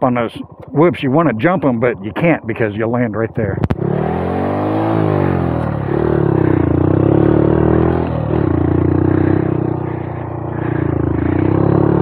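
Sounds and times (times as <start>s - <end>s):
motorcycle engine revving: 3.5s - 12.0s.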